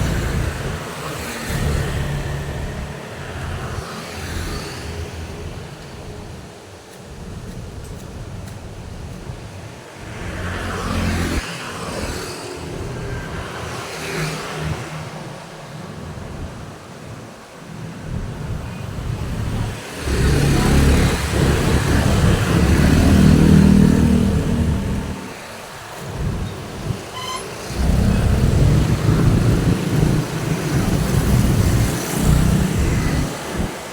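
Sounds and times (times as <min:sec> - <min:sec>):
vehicles passing by: 0:00.0 - 0:33.9
vehicle passing with low rumble: 0:18.1 - 0:25.3, 0:27.7 - 0:33.8
brief high tone: 0:27.1 - 0:27.6.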